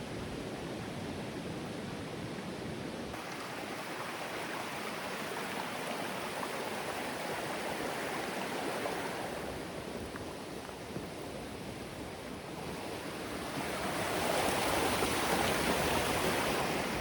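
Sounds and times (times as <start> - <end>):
river water rushing over rocks: 3.2 - 9.9.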